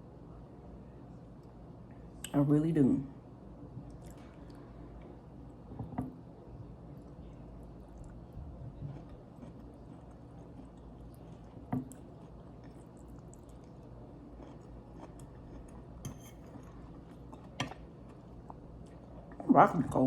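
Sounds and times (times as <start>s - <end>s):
chewing and mouth sounds: 6.9s - 19.5s.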